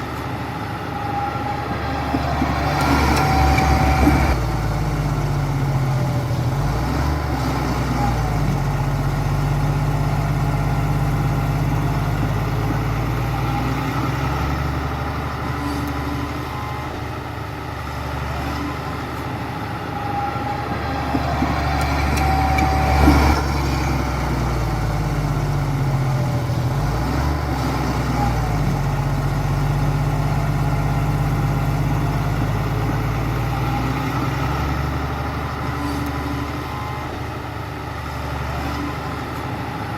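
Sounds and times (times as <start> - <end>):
machinery clunk: 0.0 - 5.2, 19.9 - 26.8
heavy diesel engine running: 0.0 - 39.9.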